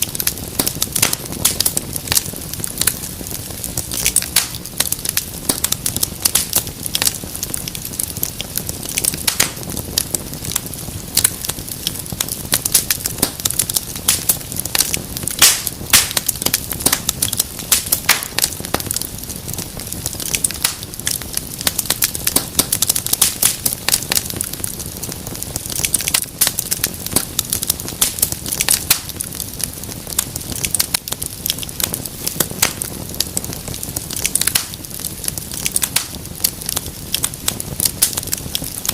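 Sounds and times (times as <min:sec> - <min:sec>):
low rumble of flames: 0:00.0 - 0:38.9
wood fire crackling: 0:00.0 - 0:38.9.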